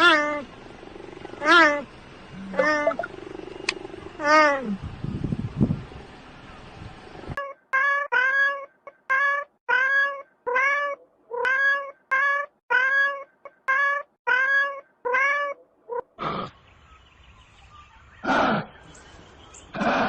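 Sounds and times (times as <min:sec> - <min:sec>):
cat meowing: 0:07.8 - 0:16.0.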